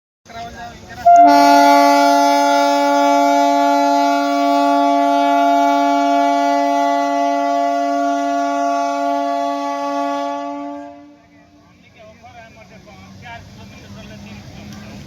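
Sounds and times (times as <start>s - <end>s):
train air horn blast: 1.0s - 11.3s.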